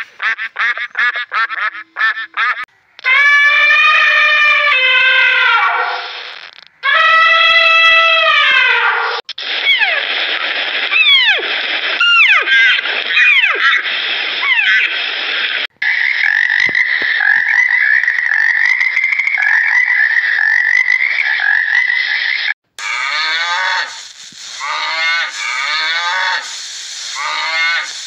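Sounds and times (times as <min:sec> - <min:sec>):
frogs croaking: 0:15.8 - 0:28.0
goat bleating: 0:22.8 - 0:24.0, 0:24.6 - 0:28.0.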